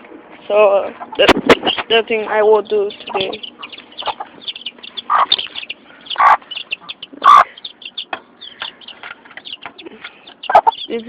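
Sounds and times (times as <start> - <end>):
chicks peeping: 0.6 - 11.0
chickens squawking: 0.9 - 11.0.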